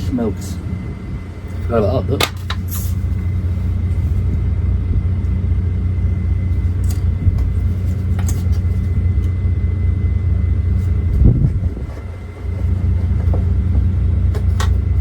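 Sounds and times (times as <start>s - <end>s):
truck diesel engine idling: 0.0s - 15.0s.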